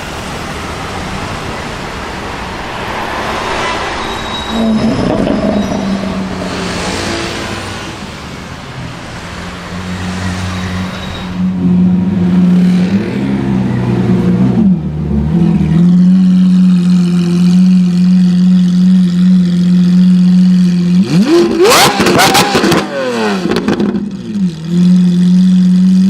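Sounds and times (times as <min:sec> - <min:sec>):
sports car engine running: 0:13.4 - 0:26.0.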